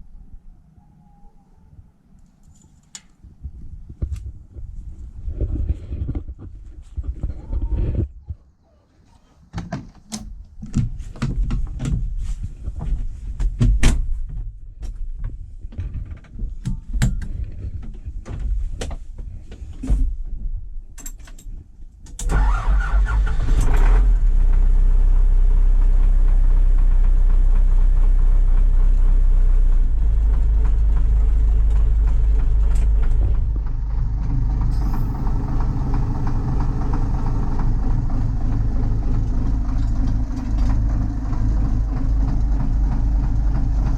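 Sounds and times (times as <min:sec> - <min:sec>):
tractor engine running: 0:22.2 - 0:43.9.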